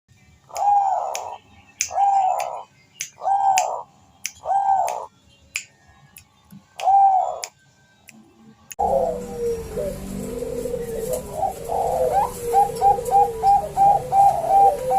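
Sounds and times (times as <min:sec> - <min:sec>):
dove cooing: 0:00.6 - 0:02.6, 0:03.2 - 0:03.8, 0:04.4 - 0:05.1, 0:06.8 - 0:07.4, 0:08.8 - 0:14.9.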